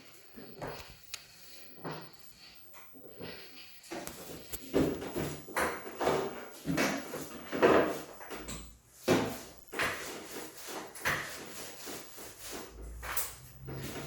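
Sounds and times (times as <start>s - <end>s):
wooden knocks and scrapes: 4.6s - 14.0s.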